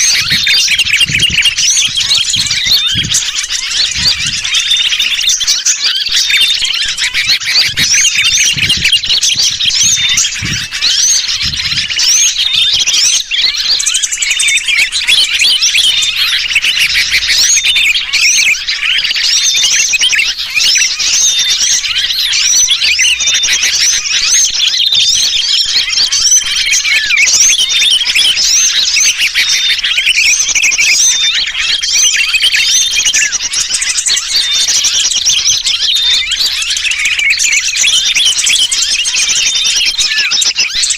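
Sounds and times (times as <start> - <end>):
bird distress calls: 0.0 - 40.9
small birds chirping: 0.0 - 40.9.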